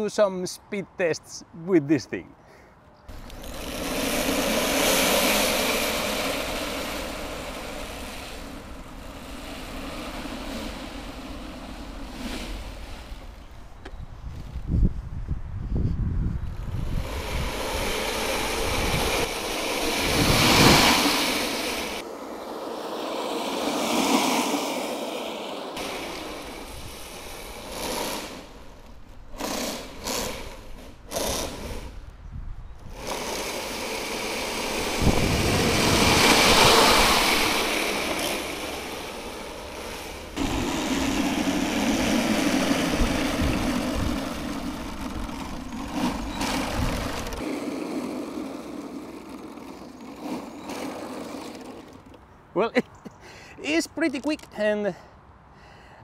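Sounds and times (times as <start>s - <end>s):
toy tank motors whining: 3.1s - 13.5s, 16.7s - 22.9s, 23.6s - 32.0s, 32.8s - 52.2s.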